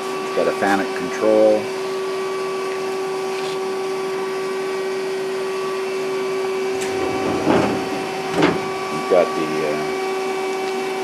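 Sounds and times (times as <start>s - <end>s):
machine hum: 6.4s - 10.2s.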